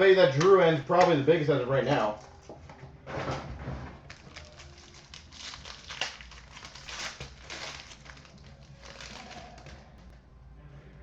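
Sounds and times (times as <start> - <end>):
packaging crinkling and rustling: 4.0 - 10.1.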